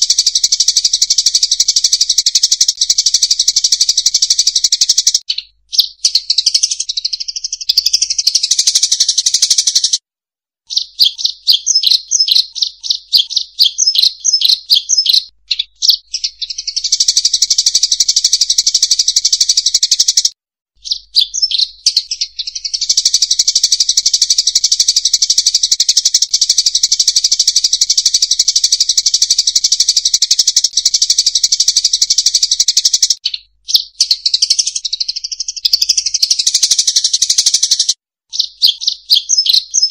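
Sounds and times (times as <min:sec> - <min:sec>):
flock of birds chirping: 0:10.7 - 0:26.9, 0:27.8 - 0:39.9.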